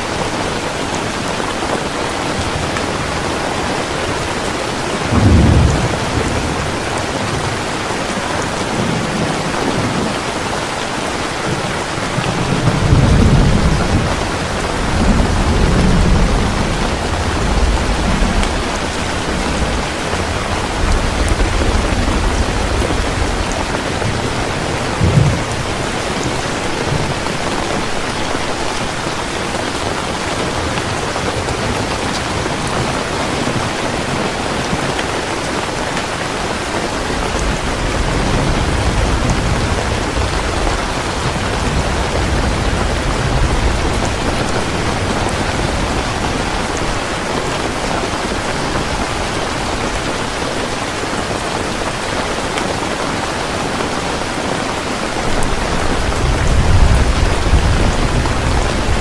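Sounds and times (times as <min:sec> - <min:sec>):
heavy rain falling: 0:00.0 - 0:59.0
thunder rumbling: 0:00.2 - 0:35.8, 0:36.5 - 0:52.8, 0:53.8 - 0:59.0
sharp thunder clap: 0:05.1 - 0:07.4, 0:12.3 - 0:27.2.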